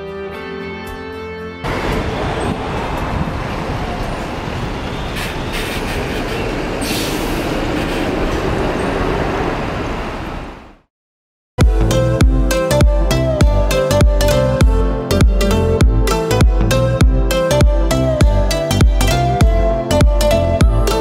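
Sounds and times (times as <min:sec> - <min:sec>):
train rumbling: 0:01.6 - 0:10.8.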